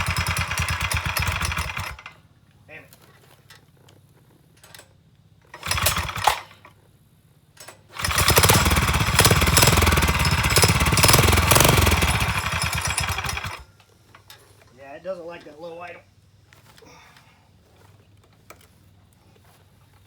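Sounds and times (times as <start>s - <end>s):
dirt bike engine revving: 0.0s - 2.0s, 5.6s - 6.4s, 8.0s - 13.6s.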